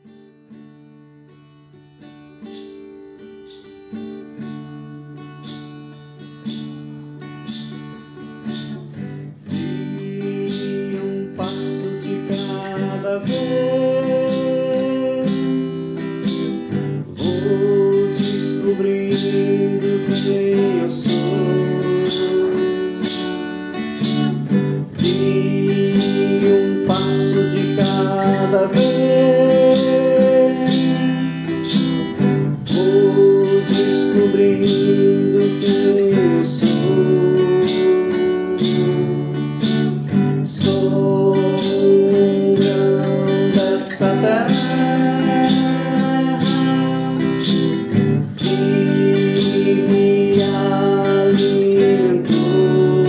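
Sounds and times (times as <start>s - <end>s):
acoustic guitar strumming: 0.0s - 53.0s.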